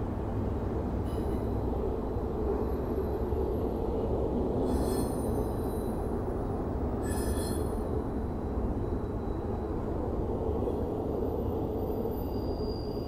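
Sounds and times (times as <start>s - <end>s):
freight train rumbling over bridge: 0.0s - 13.0s
wheel squeals: 7.0s - 7.8s.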